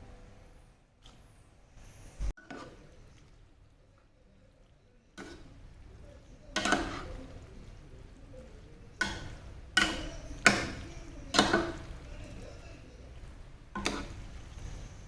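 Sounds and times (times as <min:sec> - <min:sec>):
kitchenware clinking: 0:05.2 - 0:07.5, 0:08.3 - 0:13.2, 0:13.8 - 0:15.0.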